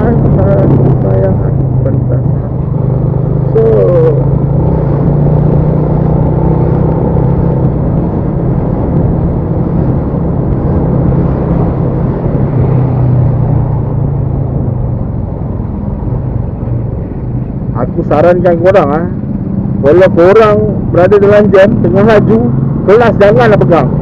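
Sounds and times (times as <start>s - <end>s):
wind noise on microphone: 0.0s - 17.7s
motorcycle engine humming: 0.0s - 24.0s
road noise: 0.0s - 24.0s.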